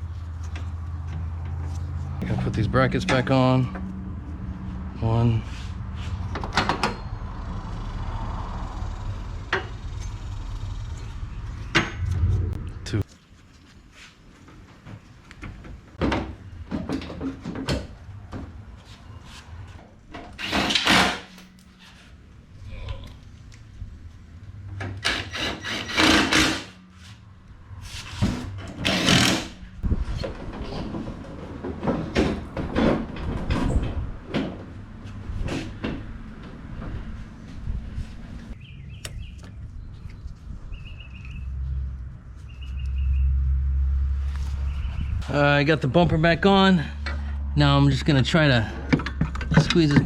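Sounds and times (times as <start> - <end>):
low background rumble: 7.1 - 13.1.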